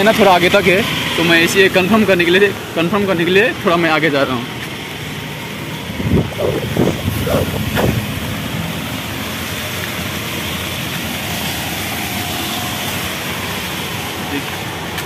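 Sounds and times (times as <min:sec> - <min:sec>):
road traffic: 0:00.0 - 0:15.0
heavy rain rushing: 0:04.8 - 0:15.0.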